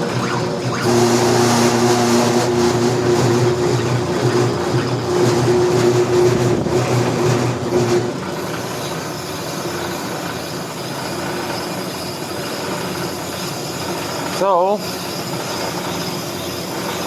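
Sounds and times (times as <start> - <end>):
brake lathe humming: 0.0 - 17.0.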